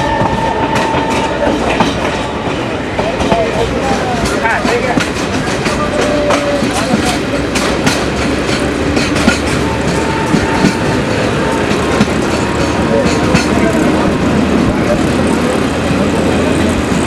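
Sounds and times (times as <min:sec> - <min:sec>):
passengers' voices: 0:00.0 - 0:17.0
train rumble: 0:00.0 - 0:17.0
wheels clacking over rail joints: 0:00.0 - 0:17.0.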